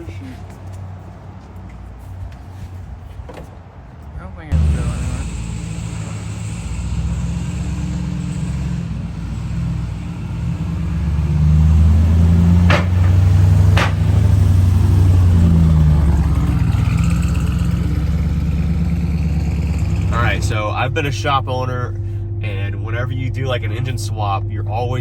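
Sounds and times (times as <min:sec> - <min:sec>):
truck engine accelerating: 0:04.4 - 0:25.0
short sharp knocks: 0:12.6 - 0:14.4.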